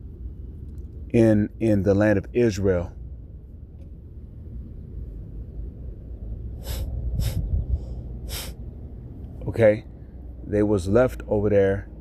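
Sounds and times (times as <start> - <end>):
low steady rumble: 0.0 - 12.0
short hissing: 6.6 - 8.6.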